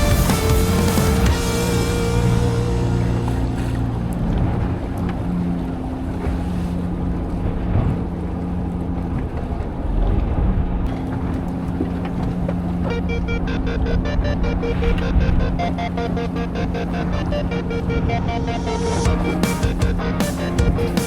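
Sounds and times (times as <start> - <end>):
music: 0.0 - 4.2, 13.0 - 21.0
boat engine running: 0.0 - 21.0.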